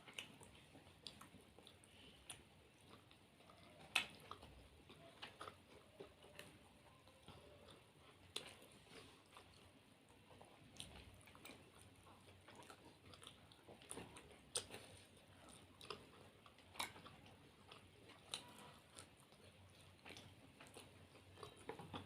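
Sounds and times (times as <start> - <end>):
people chewing food: 0.0 - 22.0.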